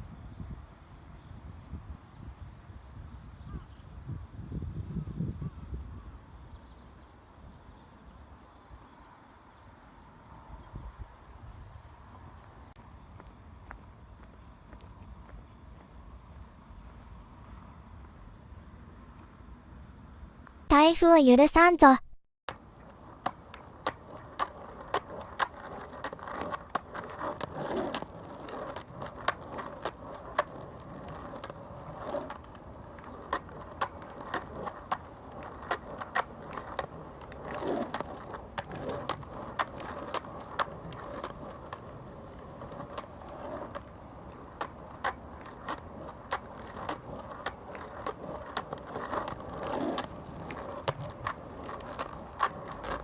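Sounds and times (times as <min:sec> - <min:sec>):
skateboard wheels rumbling on pavement: 0:00.0 - 0:20.7, 0:22.5 - 0:53.0
sharp skateboard clicks: 0:22.5 - 0:53.0.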